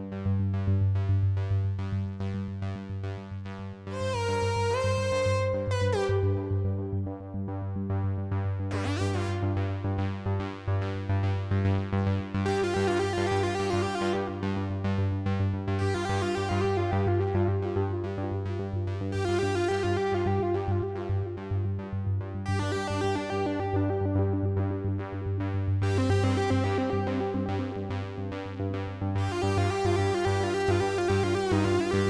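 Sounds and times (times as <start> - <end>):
synthesizer bass drone: 3.9 - 10.2
keyboard notes: 4.0 - 7.2.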